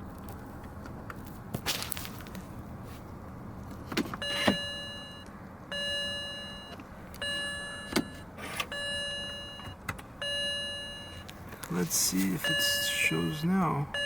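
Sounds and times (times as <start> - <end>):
car warning chime: 4.2 - 14.0.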